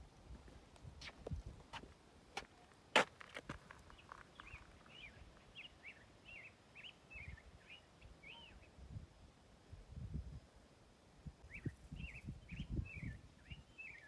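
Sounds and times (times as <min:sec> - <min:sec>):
bird chirping: 0:03.8 - 0:08.8, 0:11.4 - 0:14.0.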